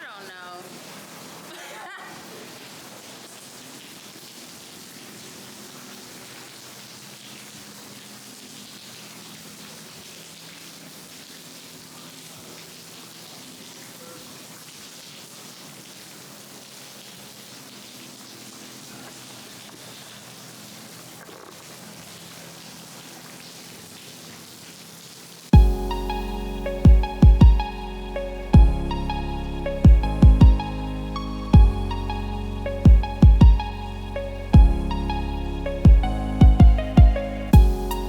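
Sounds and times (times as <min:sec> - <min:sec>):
falling water hiss: 0:00.0 - 0:38.0
faint low tones: 0:25.6 - 0:38.0.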